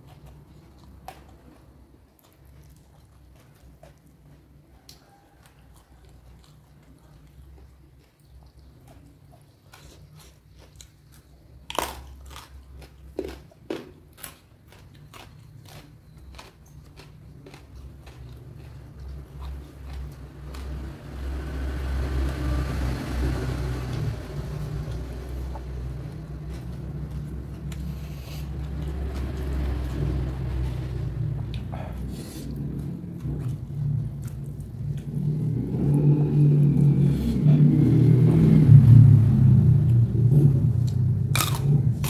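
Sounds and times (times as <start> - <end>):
chewing crunchy raw food: 0.0 - 22.4, 23.4 - 42.0
low rumble: 21.1 - 42.0.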